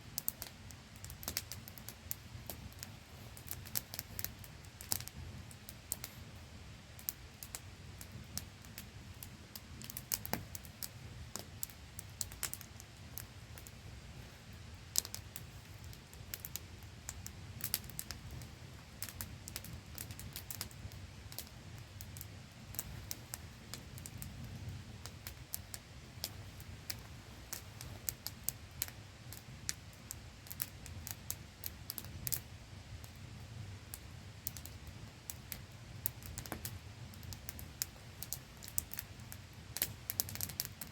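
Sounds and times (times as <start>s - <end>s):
campfire crackling: 0.0s - 40.9s.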